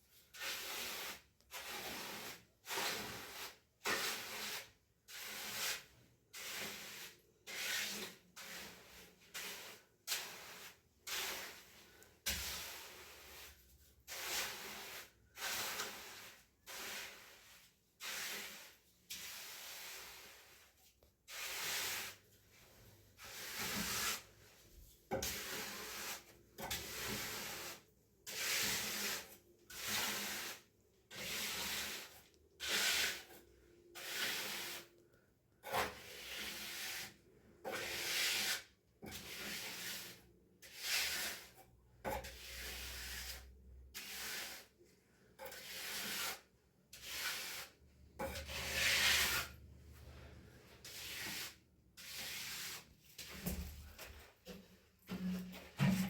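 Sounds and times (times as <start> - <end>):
hand tool rubbing gritty surface: 45.4 - 49.6.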